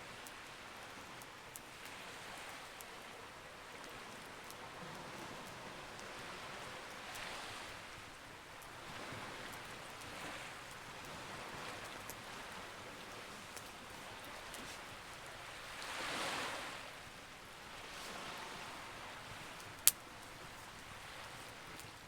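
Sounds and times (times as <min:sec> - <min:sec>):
campfire crackling and popping: 0:07.9 - 0:15.6, 0:19.3 - 0:22.0.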